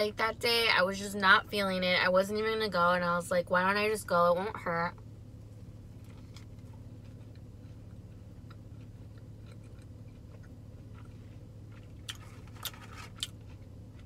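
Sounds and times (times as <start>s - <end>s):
steady low hum: 0.0s - 14.0s
chewing food: 6.0s - 14.0s.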